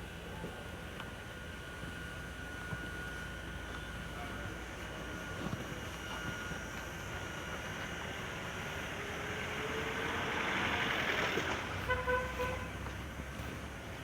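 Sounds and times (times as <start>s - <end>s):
tram rumbling: 6.6s - 13.4s.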